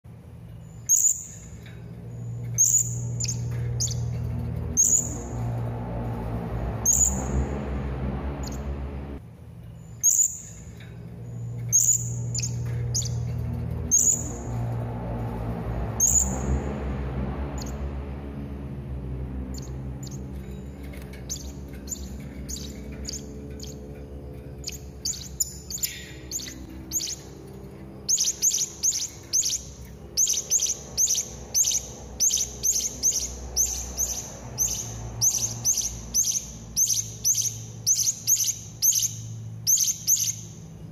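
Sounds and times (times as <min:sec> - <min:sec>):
low steady drone: 0:00.1 - 0:40.9
parrot chirping: 0:00.8 - 0:01.6, 0:02.2 - 0:05.4, 0:11.6 - 0:14.5, 0:19.4 - 0:40.7.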